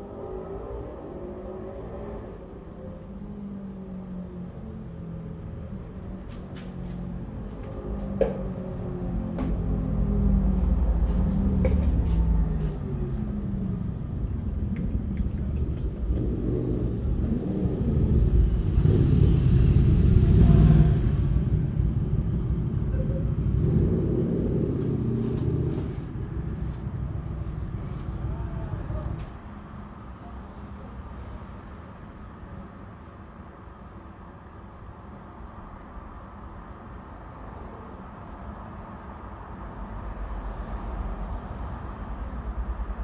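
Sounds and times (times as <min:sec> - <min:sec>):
vehicle engine rumbling: 0:04.6 - 0:30.8.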